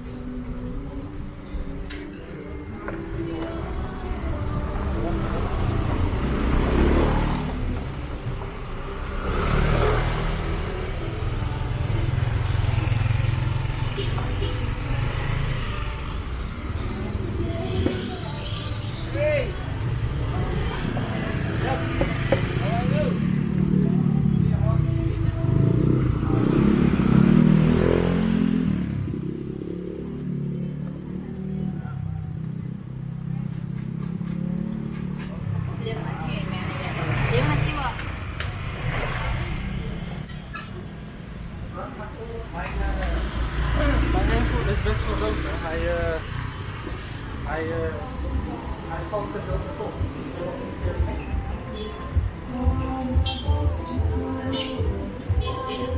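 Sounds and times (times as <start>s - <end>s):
low traffic rumble: 0.0s - 55.9s
vehicle engines running: 0.0s - 55.9s
motorbike passing: 2.6s - 55.9s
vehicle passing: 3.4s - 13.8s, 33.0s - 40.2s.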